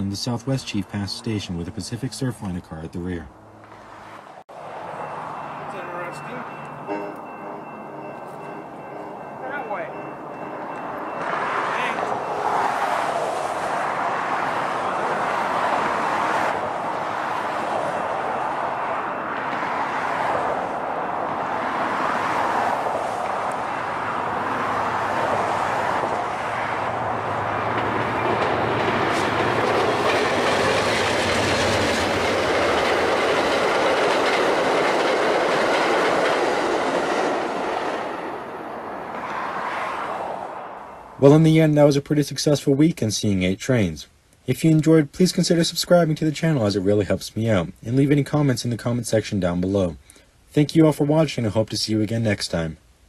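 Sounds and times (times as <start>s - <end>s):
passenger train passing: 3.3s - 41.8s.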